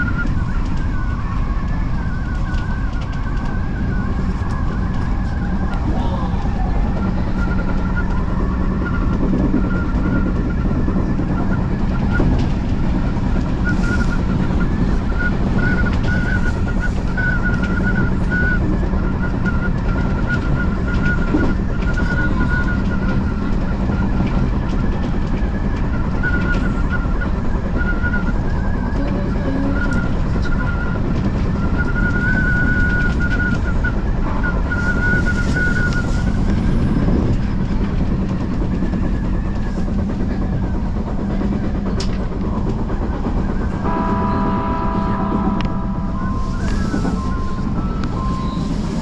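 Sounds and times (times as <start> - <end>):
high-pitched train whine: 0.0 - 49.0
wheels rumbling on rail: 0.0 - 49.0
ringing tone: 43.7 - 49.0.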